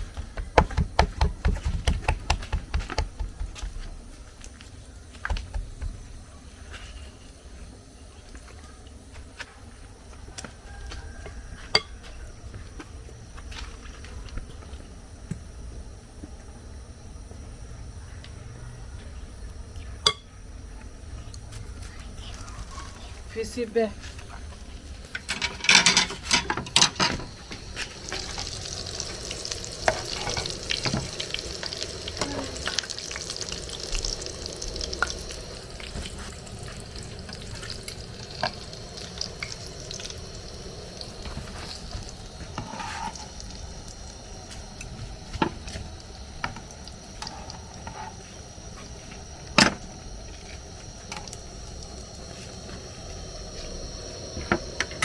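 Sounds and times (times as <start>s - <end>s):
food frying in hot oil: 0.0s - 9.3s, 21.5s - 55.0s.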